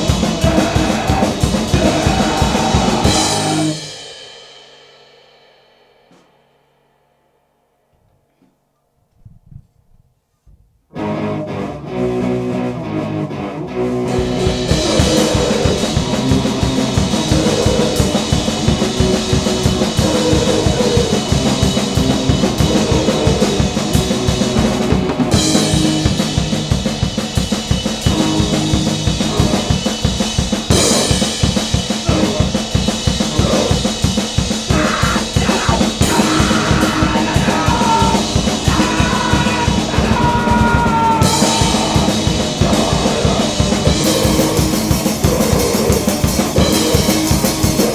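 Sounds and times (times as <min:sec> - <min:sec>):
loud distorted guitar: 0:00.0 - 0:04.1, 0:10.9 - 0:47.9
fast drum beat: 0:00.0 - 0:04.8, 0:14.2 - 0:47.9
high guitar squeals: 0:11.0 - 0:26.5, 0:28.0 - 0:47.9.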